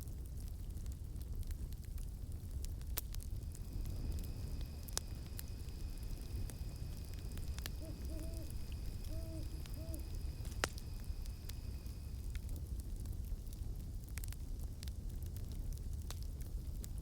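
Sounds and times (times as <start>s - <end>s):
campfire crackling and popping: 0.0s - 17.0s
cicadas droning: 3.3s - 12.5s
owl hooting: 3.8s - 11.9s.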